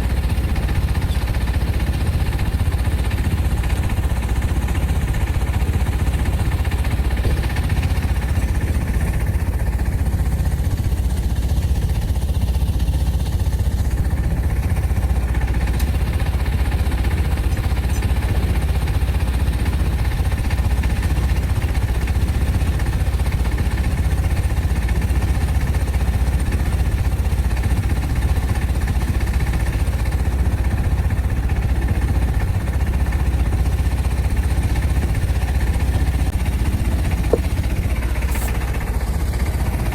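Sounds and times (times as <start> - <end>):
motor droning: 0.0 - 39.9.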